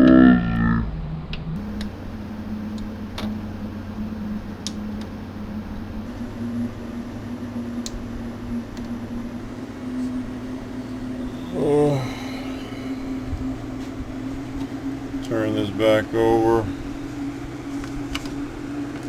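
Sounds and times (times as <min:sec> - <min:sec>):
electrical fan hum: 0:00.0 - 0:19.0
faint light clicks: 0:04.6 - 0:05.2.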